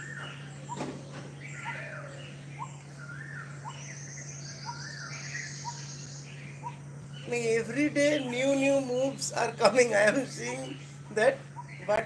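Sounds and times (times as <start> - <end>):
birds chirping and whistling: 0.0 - 12.0
steady low hum: 0.0 - 12.0.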